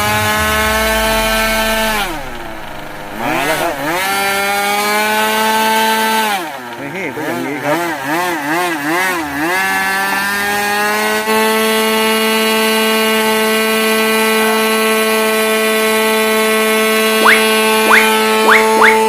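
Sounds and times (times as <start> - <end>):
quick rising chirp: 0.0 - 4.8, 17.2 - 19.0.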